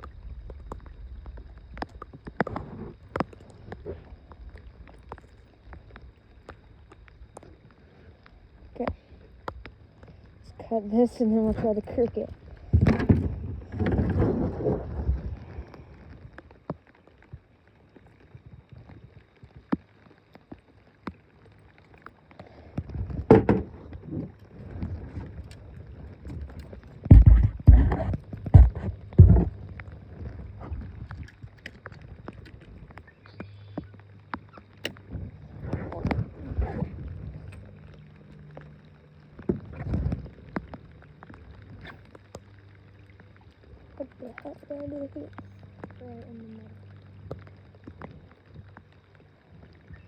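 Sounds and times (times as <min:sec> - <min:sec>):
steady low hum: 0:00.0 - 0:17.9, 0:20.8 - 0:50.0
knocks and clunks of gear: 0:12.7 - 0:14.8, 0:22.8 - 0:25.6, 0:26.2 - 0:29.8
knock and rustle: 0:27.1 - 0:29.6.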